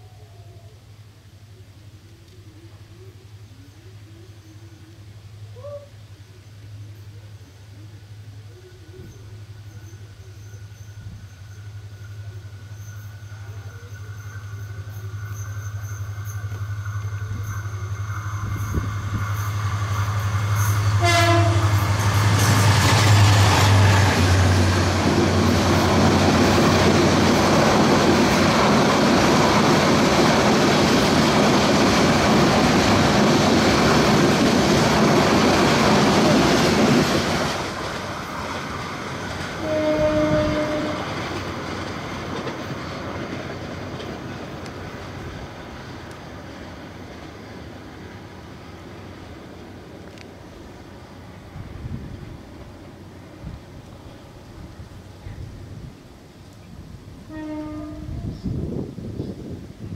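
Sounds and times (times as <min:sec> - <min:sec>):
diesel locomotive engine drone: 0:00.0 - 0:59.9
train wheels rumbling on rail: 0:08.3 - 0:59.9
train horn blast: 0:20.6 - 0:24.8, 0:39.6 - 0:41.2, 0:57.2 - 0:58.4.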